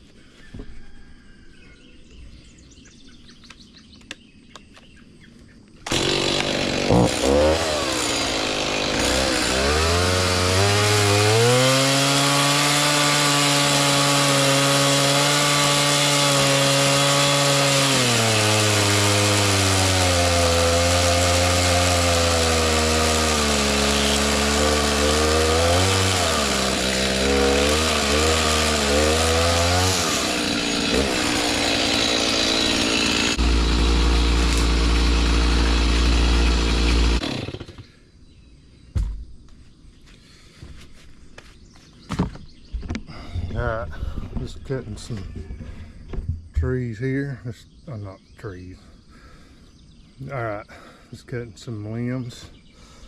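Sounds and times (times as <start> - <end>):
chainsaw revving: 5.8 - 37.9.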